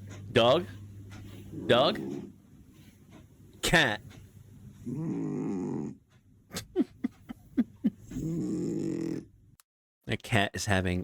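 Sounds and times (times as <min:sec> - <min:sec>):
cat snoring: 0:04.9 - 0:06.0, 0:08.2 - 0:09.3.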